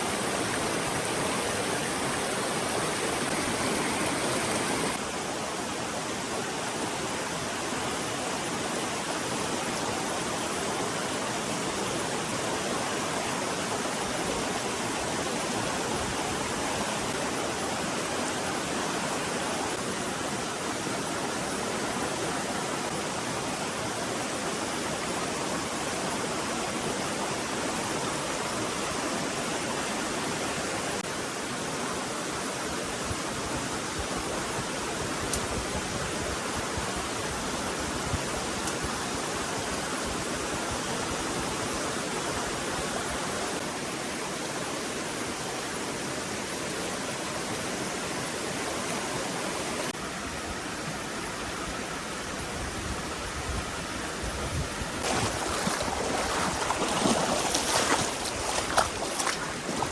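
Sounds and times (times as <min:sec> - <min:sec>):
stream water rushing: 0:00.0 - 0:52.4, 0:53.9 - 0:59.9.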